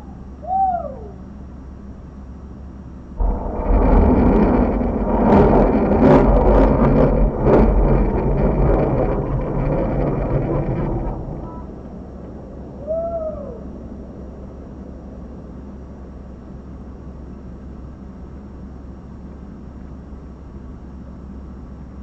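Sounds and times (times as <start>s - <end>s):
rocket launch roar: 3.2s - 12.2s.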